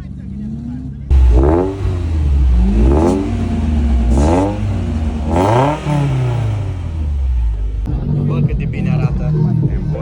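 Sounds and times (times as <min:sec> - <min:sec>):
car engine revving: 0:00.9 - 0:07.9.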